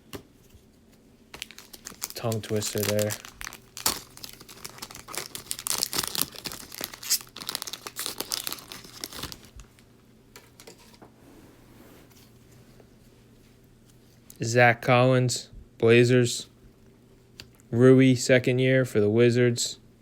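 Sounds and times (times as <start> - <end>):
wrapper crinkling and tearing: 1.3 - 9.8.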